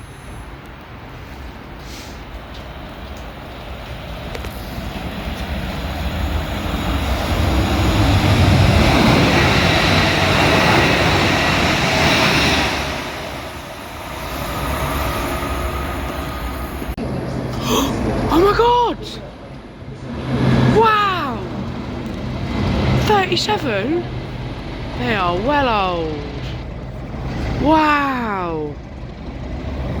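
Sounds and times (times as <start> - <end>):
train passing with rail noise: 0.0 - 30.0.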